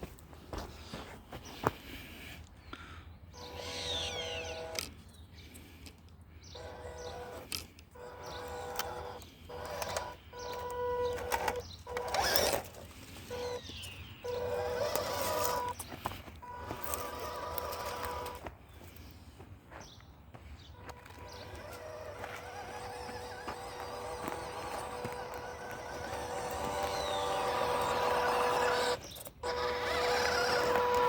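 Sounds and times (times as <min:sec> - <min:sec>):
toy car motor whining: 0:03.4 - 0:18.4, 0:20.8 - 0:31.0
crunching scrape: 0:06.6 - 0:13.6, 0:14.3 - 0:19.0, 0:20.8 - 0:31.0.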